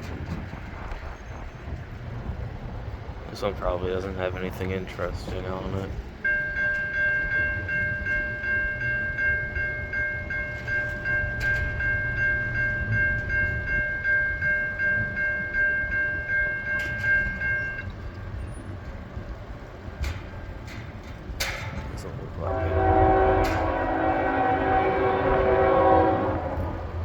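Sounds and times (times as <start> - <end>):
freight train rumble: 0.0 - 27.0
crossing bell ringing: 6.1 - 27.0.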